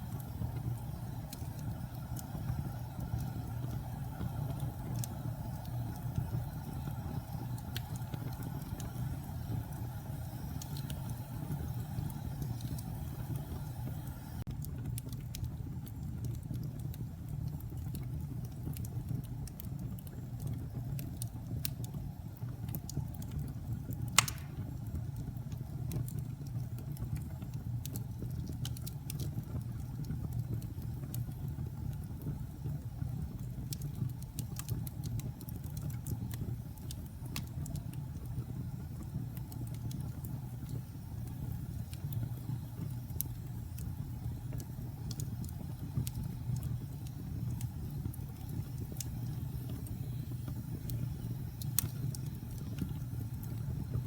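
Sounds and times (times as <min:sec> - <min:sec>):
low rumble of flames: 0:00.0 - 0:54.0
wood fire crackling: 0:00.0 - 0:54.0
loud pop of fire: 0:24.2 - 0:24.8.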